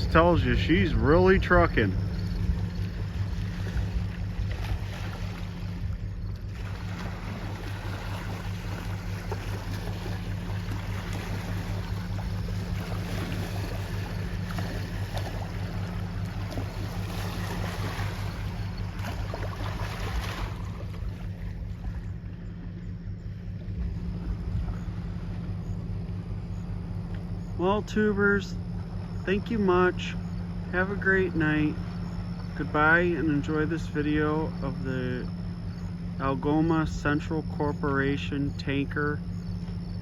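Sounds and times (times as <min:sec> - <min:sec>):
waves washing ashore: 0:00.0 - 0:21.9
ship engine hum: 0:00.0 - 0:40.0.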